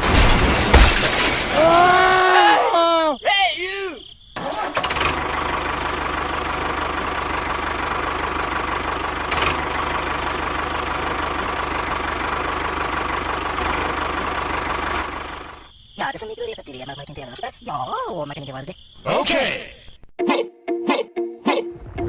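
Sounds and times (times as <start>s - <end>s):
engine idling: 4.4s - 15.6s.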